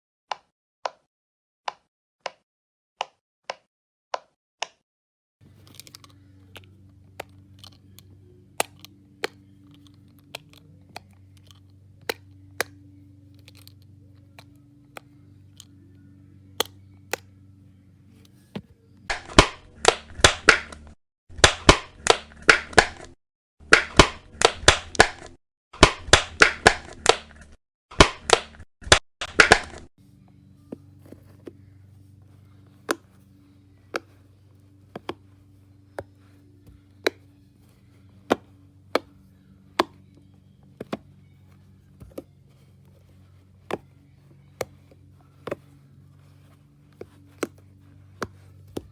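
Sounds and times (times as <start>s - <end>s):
low steady hum: 5.4s - 28.6s, 29.2s - 48.9s
fidget toys clicking: 5.6s - 15.8s.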